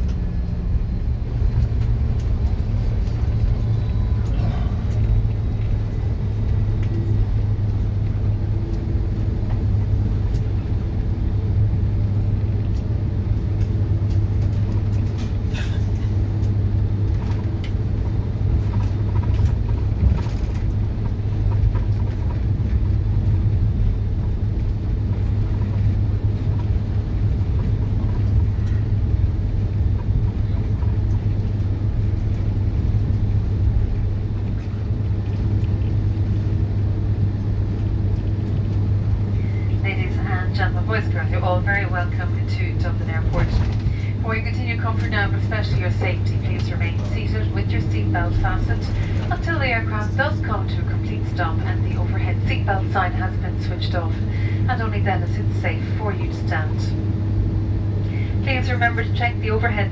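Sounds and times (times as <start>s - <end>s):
airplane cabin rumble: 0.0s - 59.9s.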